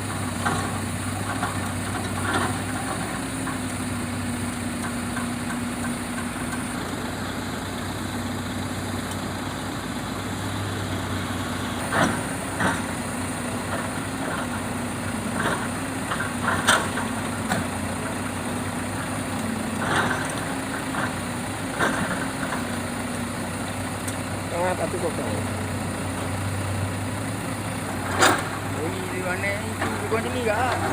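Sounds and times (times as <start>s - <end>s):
logs knocking and clunking: 0.0s - 3.9s, 4.6s - 6.7s, 11.8s - 18.3s
diesel engine idling: 0.0s - 30.9s.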